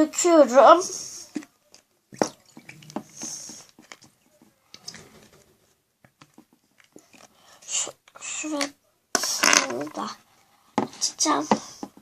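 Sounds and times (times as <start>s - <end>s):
slime spurting and dripping: 1.7s - 5.2s.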